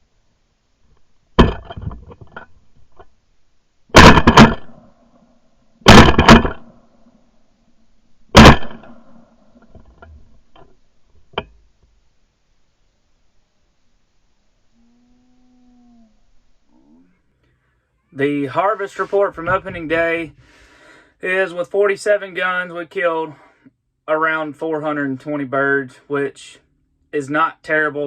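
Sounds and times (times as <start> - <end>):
shotgun blasts: 3.9 - 4.8, 5.8 - 6.8, 8.3 - 9.2
distant gunshot: 4.0 - 4.8, 5.8 - 6.8, 8.3 - 9.2.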